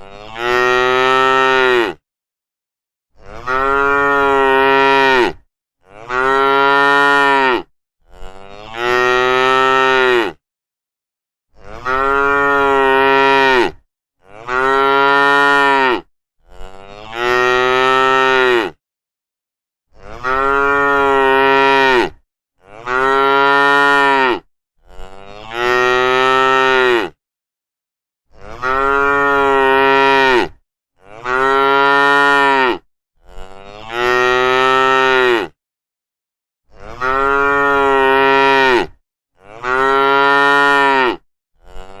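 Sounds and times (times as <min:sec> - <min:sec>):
cows mooing: 0:03.2 - 0:10.4, 0:11.7 - 0:18.8, 0:20.1 - 0:24.5, 0:28.4 - 0:35.5, 0:36.8 - 0:42.0.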